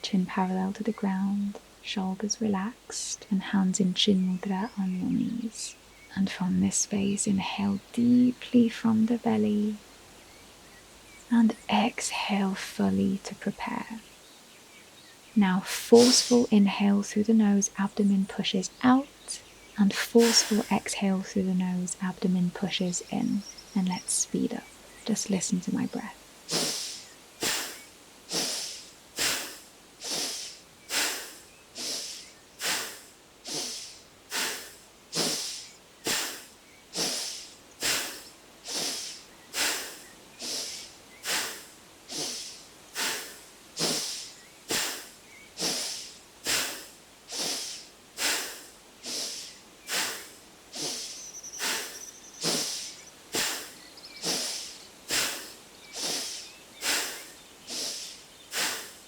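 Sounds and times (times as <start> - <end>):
forceful rhythmic nasal breaths: 15.7 - 16.6, 18.9 - 59.0.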